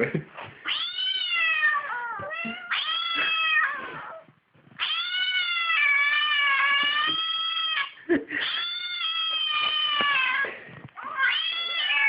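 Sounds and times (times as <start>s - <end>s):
cat yowling: 4.8s - 12.0s.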